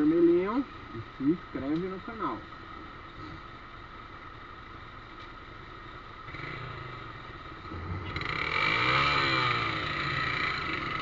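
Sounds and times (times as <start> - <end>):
motorcycle engine passing: 6.3 - 11.0.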